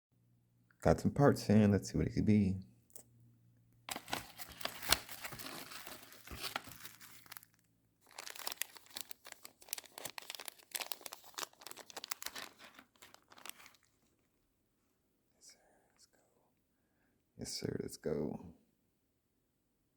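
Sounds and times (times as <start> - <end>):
packaging crinkling and tearing: 3.9 - 14.0.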